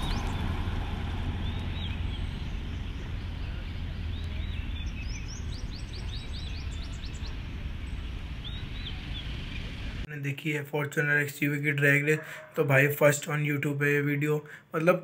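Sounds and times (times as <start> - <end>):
birds chirping: 0.0 - 10.1
steady low rumble: 0.0 - 10.1.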